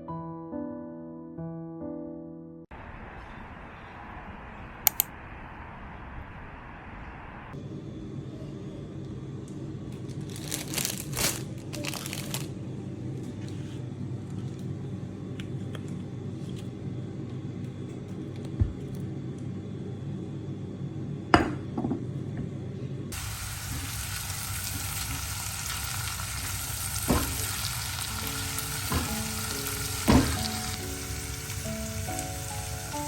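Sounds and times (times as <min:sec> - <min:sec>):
food sizzling in a pan: 0:23.2 - 0:33.0.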